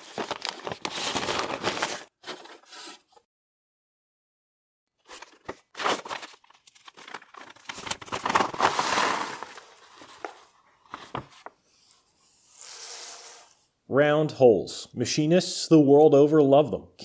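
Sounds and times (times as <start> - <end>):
paper envelope crinkling: 0.0 - 3.0, 5.0 - 11.6
cardboard boxes shuffled: 0.1 - 3.1.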